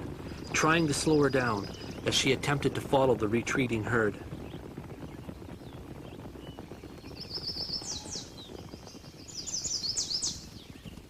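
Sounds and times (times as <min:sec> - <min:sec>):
low crackling noise: 0:00.0 - 0:11.0
small bird trilling: 0:09.2 - 0:10.6.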